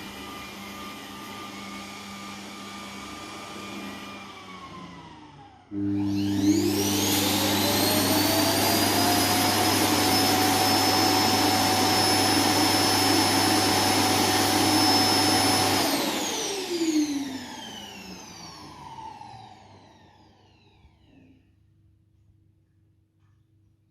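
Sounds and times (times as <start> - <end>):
robot vacuum motor whining: 5.8 - 20.7.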